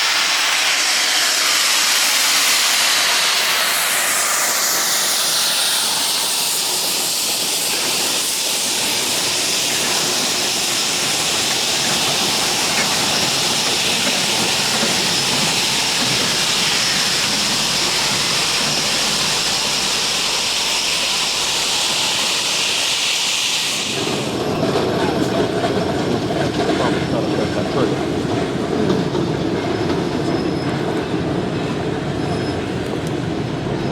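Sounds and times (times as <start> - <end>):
steam locomotive venting steam: 0.0 - 33.9.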